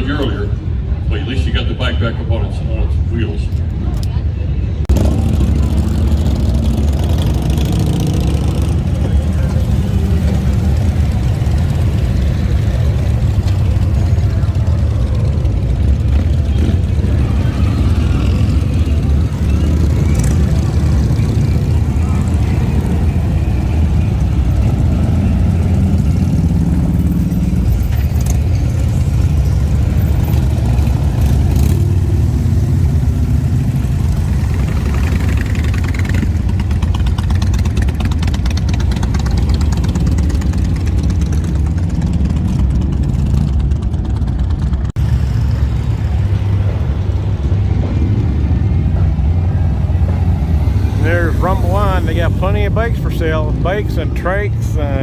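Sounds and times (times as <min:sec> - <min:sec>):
motorcycle engines idling: 0:00.0 - 0:55.0.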